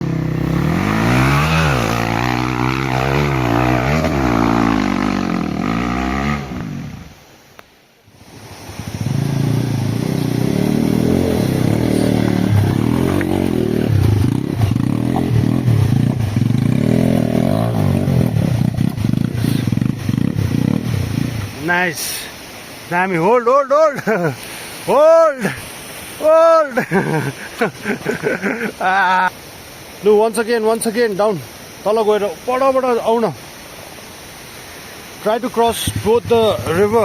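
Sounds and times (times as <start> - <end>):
motorcycle engine revving: 0.0 - 7.2, 8.9 - 21.6.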